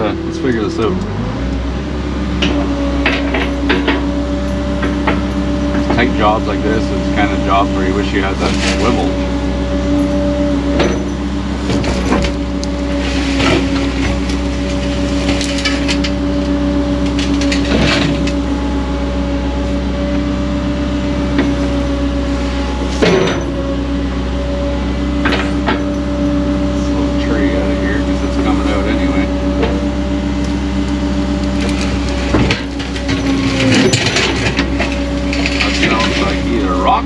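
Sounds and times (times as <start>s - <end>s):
excavator engine under load: 0.0s - 37.0s.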